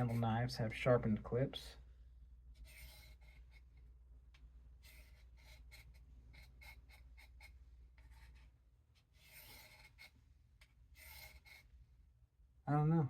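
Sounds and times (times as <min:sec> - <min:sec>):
knife scraping on sharpening rod: 0:11.0 - 0:11.7.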